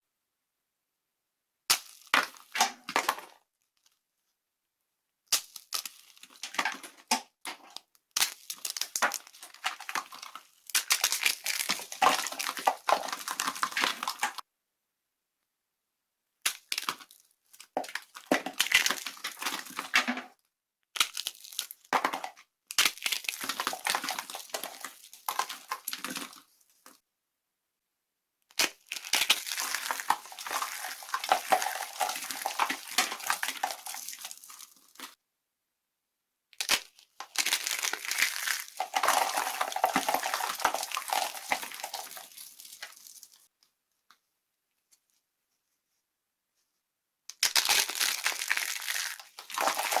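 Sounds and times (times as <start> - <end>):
dry soap crushing and crackling: 1.7 - 4.1, 5.3 - 14.4, 16.4 - 27.0, 28.5 - 35.2, 36.6 - 44.2, 47.3 - 50.0.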